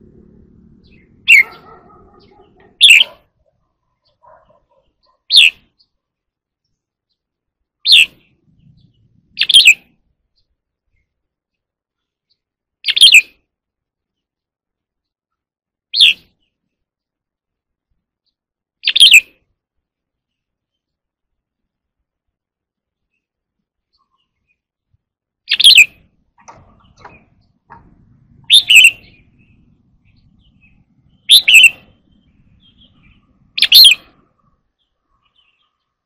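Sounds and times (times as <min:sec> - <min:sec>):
bulbul singing: 0:00.0 - 0:06.0, 0:06.6 - 0:13.5, 0:15.9 - 0:16.7, 0:18.2 - 0:19.5, 0:25.4 - 0:36.0.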